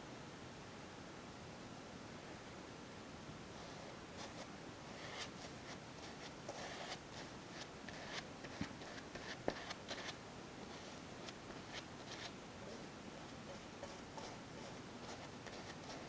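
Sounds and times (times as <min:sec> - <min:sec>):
brush scratching on cloth: 0:03.6 - 0:16.0.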